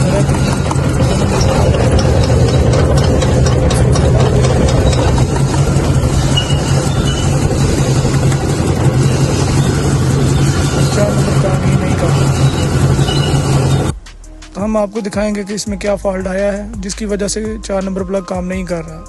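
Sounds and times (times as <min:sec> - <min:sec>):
engine idling with a misfire: 0:00.0 - 0:13.9.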